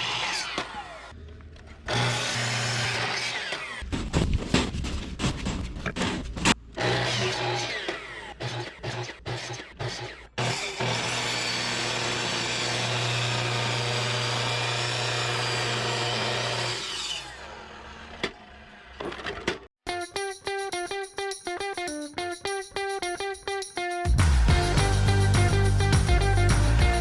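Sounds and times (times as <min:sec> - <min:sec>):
power tool cutting firewood: 0:00.0 - 0:01.2, 0:01.8 - 0:03.9, 0:06.7 - 0:19.5.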